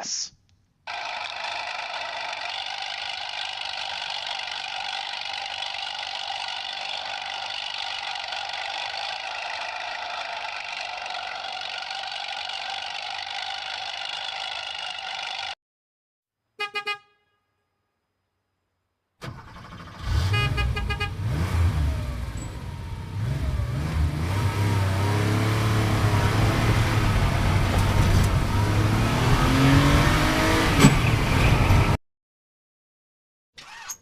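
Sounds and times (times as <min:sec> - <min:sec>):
car engine revving: 0:00.9 - 0:15.6, 0:19.2 - 0:32.0
car horn beeping: 0:16.6 - 0:17.6, 0:20.1 - 0:21.5.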